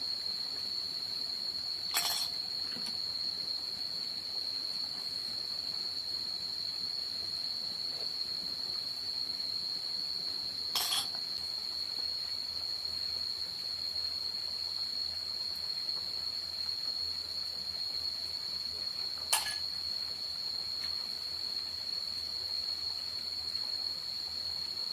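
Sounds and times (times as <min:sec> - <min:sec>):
high-pitched insect chorus: 0:00.0 - 0:24.9
short clinks or knocks: 0:01.9 - 0:02.4, 0:10.8 - 0:11.2.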